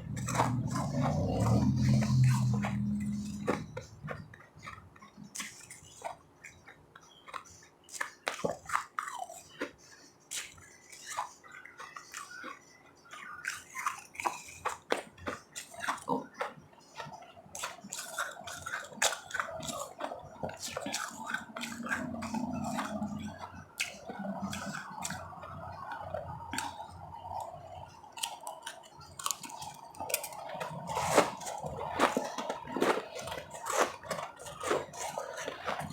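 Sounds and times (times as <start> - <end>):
person crunching ice: 29.2 - 35.9.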